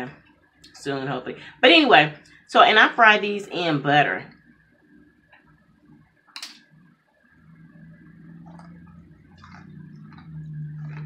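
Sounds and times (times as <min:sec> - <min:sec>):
closed-mouth humming: 0:04.2 - 0:11.0
noodles crunching while chewed: 0:08.4 - 0:11.0.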